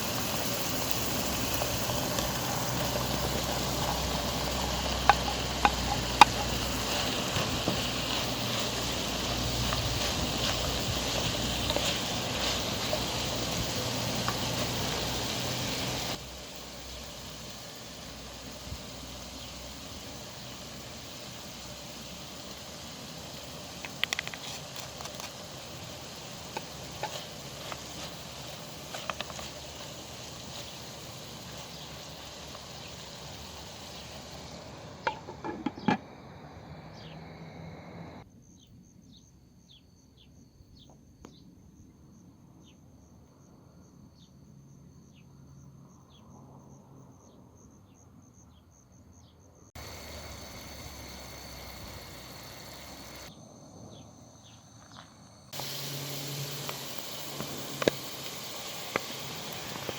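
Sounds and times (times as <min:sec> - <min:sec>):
steady hiss: 0:00.0 - 0:38.2, 0:49.7 - 0:53.4, 0:54.4 - 0:59.9
insects trilling and chirping: 0:00.0 - 0:59.9.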